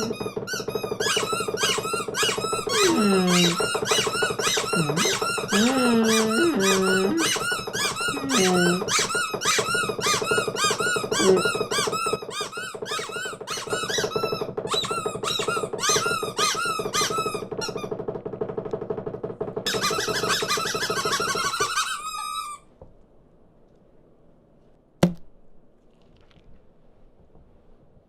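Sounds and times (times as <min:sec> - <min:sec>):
cartoon birds chirping: 0:02.3 - 0:09.0.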